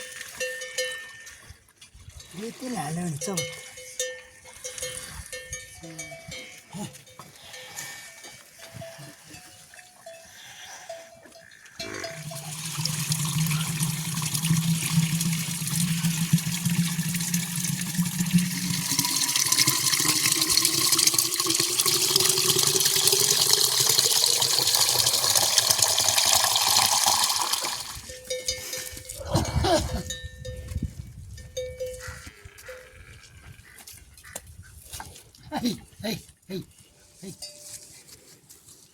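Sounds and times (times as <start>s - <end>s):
rush of running water: 12.1s - 28.0s.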